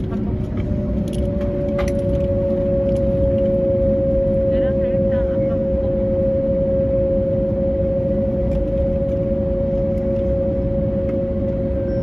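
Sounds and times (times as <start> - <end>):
engine and air-conditioning hum: 0.0 - 12.0
low rumble: 0.0 - 12.0.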